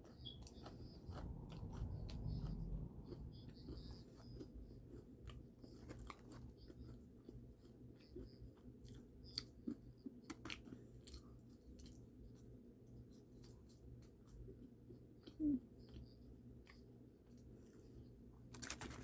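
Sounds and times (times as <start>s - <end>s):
person chewing: 0.0s - 12.5s
low steady hum: 0.0s - 19.0s.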